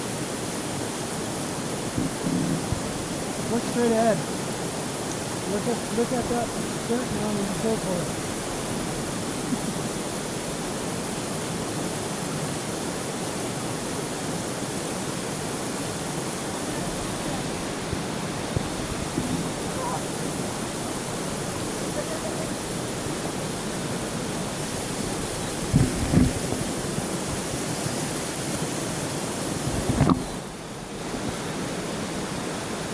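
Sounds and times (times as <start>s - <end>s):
river water rushing: 0.0s - 32.9s.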